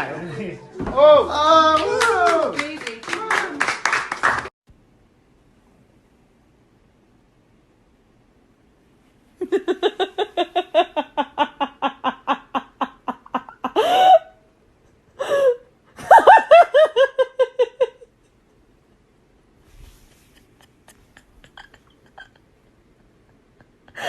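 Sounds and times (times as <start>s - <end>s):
person laughing hard: 9.4s - 14.3s, 15.2s - 18.1s, 20.2s - 24.0s.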